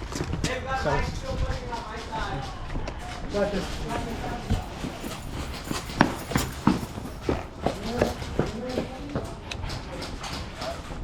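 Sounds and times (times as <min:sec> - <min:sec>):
footsteps on hard ground: 0:03.0 - 0:10.4.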